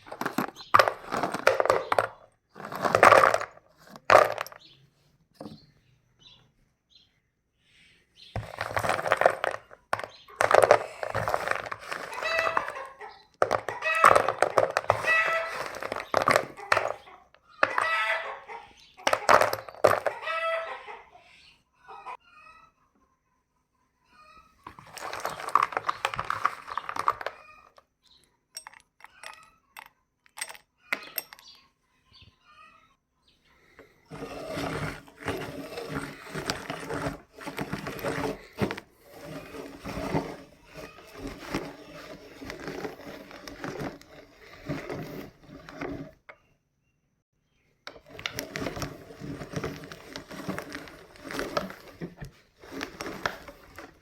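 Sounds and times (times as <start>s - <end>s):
meat grinder crushing chalk: 0.0s - 4.7s, 8.4s - 18.0s, 19.0s - 20.2s, 24.7s - 27.6s, 33.7s - 46.3s, 47.9s - 54.0s.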